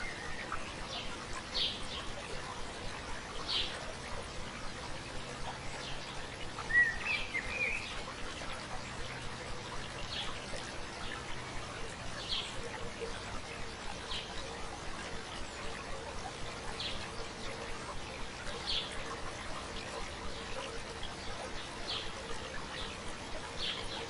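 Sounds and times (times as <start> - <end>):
stream babbling: 0.0 - 24.0
bird chirping: 6.6 - 8.1.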